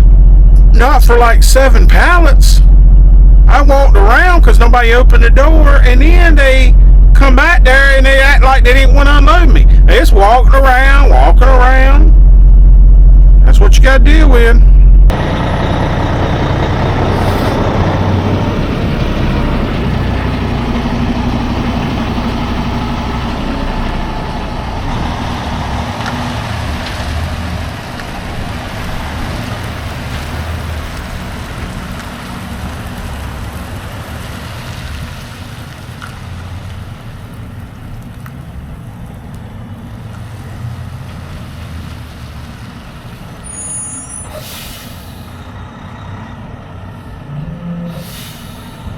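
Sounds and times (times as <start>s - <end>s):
diesel truck engine rumble: 0.0s - 48.9s
road and air noise: 0.0s - 48.9s.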